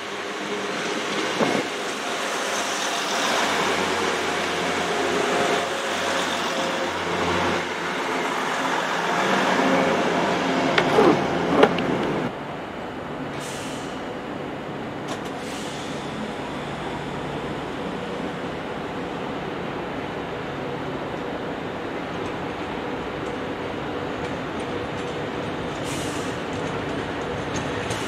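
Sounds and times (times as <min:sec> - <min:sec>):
train rumbling rush: 0:00.0 - 0:28.0
train squeals: 0:01.9 - 0:07.5.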